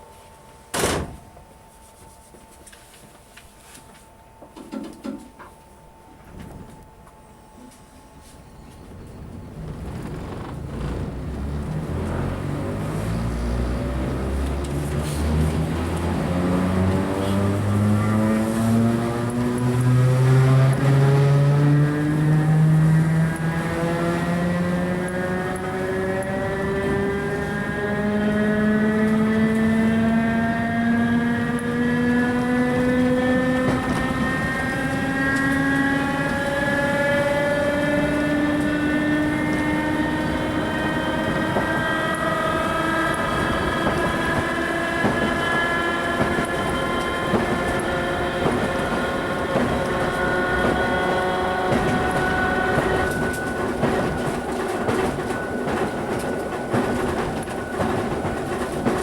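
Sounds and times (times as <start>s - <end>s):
wheels clicking over rail joints: 8.7s - 12.8s, 31.1s - 59.0s
electric train motors whining: 8.7s - 59.0s.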